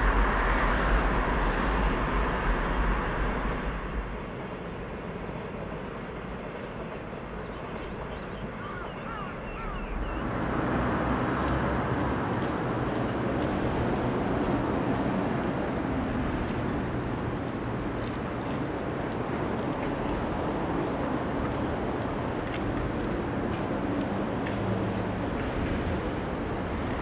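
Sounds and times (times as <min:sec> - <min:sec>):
background rumble: 0:00.0 - 0:07.4
distant train rumbling on bridge: 0:00.0 - 0:27.0
bird chirps: 0:07.4 - 0:10.3.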